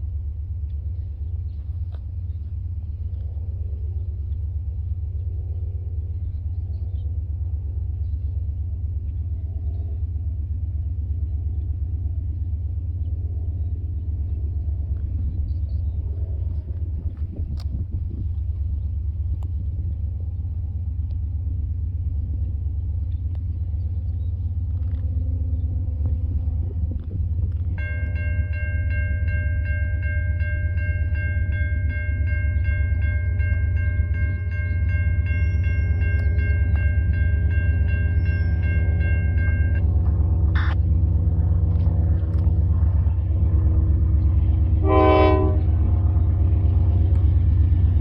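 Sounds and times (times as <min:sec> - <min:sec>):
freight train rumbling: 0:00.0 - 0:48.0
railroad crossing bell ringing: 0:27.7 - 0:41.6, 0:43.5 - 0:48.0.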